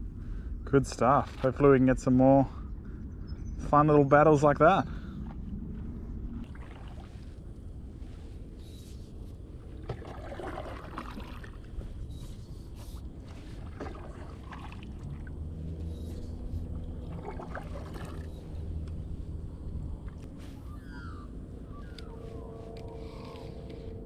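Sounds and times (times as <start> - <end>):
low steady hum: 0.0 - 24.0
steady low rumble: 0.0 - 24.0
oars splashing in water: 6.4 - 7.6, 9.6 - 19.2.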